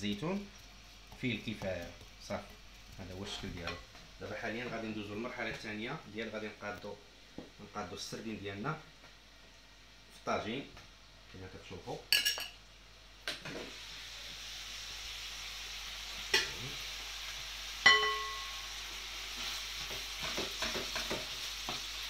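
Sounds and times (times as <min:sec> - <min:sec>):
onions sizzling in oil: 0:00.0 - 0:06.2, 0:12.2 - 0:22.0
utensil clinking on pot: 0:17.9 - 0:18.5.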